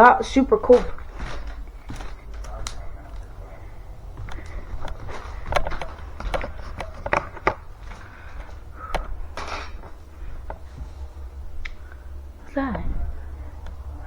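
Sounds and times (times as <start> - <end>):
objects clicking and knocking: 0.0 - 3.4, 4.1 - 11.0.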